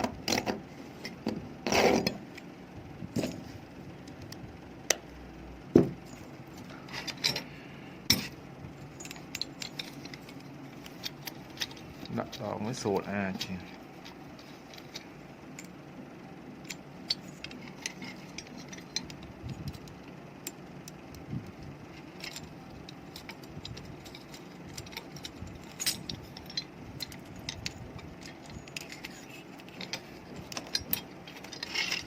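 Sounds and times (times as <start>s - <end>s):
steady low hum: 0.0s - 32.0s
metal tools clinking: 6.0s - 15.8s, 16.6s - 20.6s, 21.9s - 32.0s.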